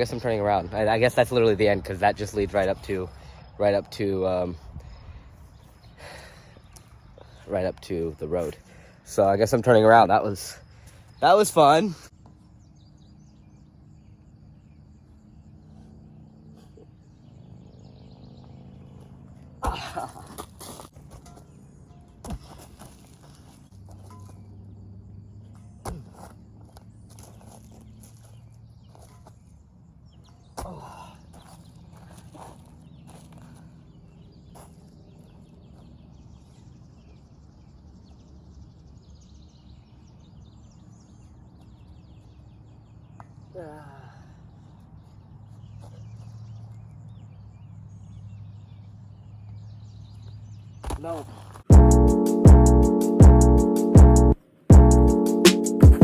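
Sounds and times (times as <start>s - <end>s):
crickets chirping: 0.0s - 30.2s.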